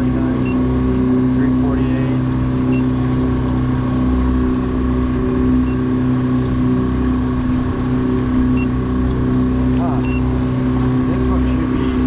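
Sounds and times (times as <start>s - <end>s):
outboard motor running: 0.0s - 12.0s
short high beep: 10.0s - 10.2s.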